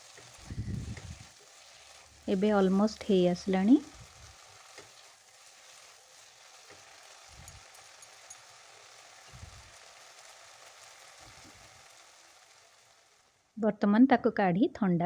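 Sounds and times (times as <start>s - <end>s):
masala sizzling in oil: 0.0s - 13.6s
soft low thumps: 0.4s - 1.3s.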